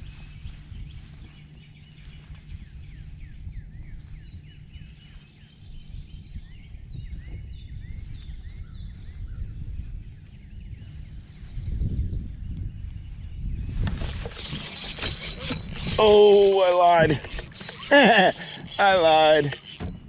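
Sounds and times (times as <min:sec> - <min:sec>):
birds chirping: 0:00.1 - 0:09.2, 0:13.9 - 0:20.0.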